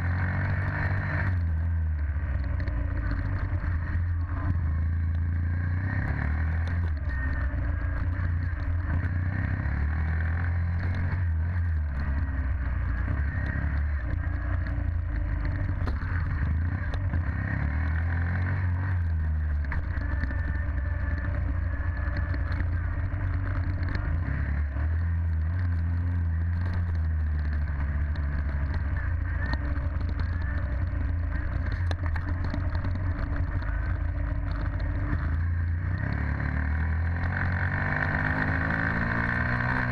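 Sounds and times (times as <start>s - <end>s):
dirt bike engine running: 0.0s - 39.9s
light clicks and rattles: 18.9s - 35.4s.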